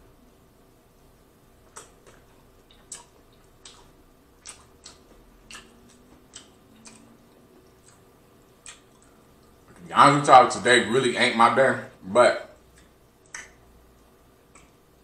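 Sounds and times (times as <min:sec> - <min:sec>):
person chewing with wet clicks: 0:01.6 - 0:09.9, 0:12.5 - 0:15.0.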